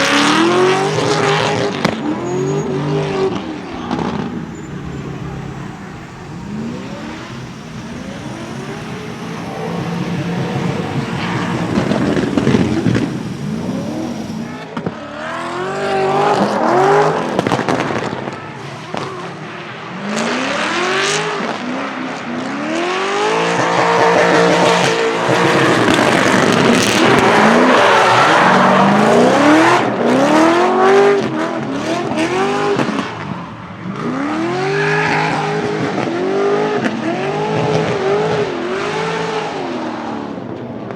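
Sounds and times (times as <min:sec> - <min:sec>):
exhaust backfire crackles: 0:00.0 - 0:21.7, 0:22.9 - 0:40.9
car engine revving: 0:00.0 - 0:40.9
tyres squealing: 0:00.1 - 0:14.6.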